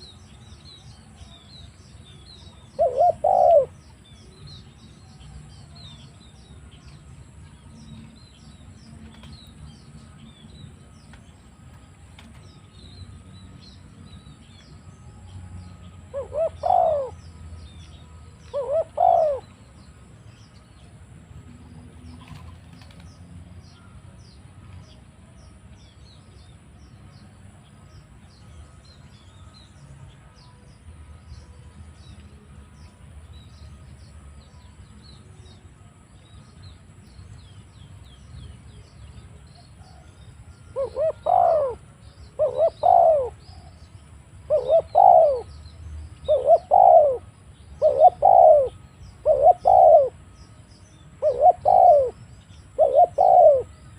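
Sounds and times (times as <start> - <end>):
dove cooing: 2.7 - 3.8, 16.1 - 17.2, 18.5 - 19.5, 40.7 - 43.7, 44.5 - 45.5, 46.3 - 50.2, 51.2 - 53.7
faint high chirping: 25.6 - 53.9.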